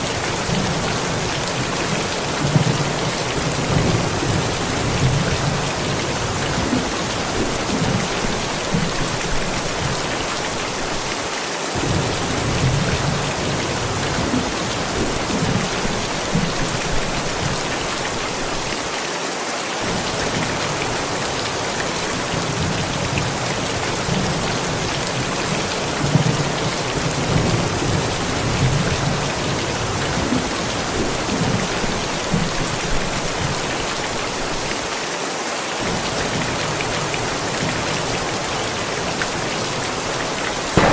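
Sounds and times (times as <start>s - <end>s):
heavy rain falling: 0.0s - 40.9s
distant thunder rumbling: 11.8s - 17.6s.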